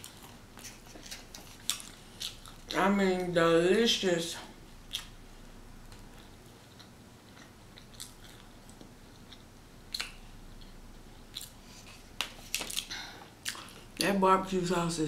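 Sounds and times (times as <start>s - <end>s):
person chewing: 0.0s - 2.8s, 4.8s - 5.2s, 5.9s - 14.0s.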